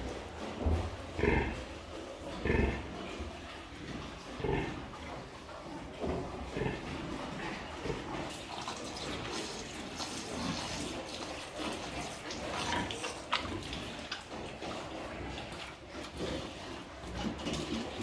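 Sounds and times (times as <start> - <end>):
water running and splashing: 8.2 - 14.4.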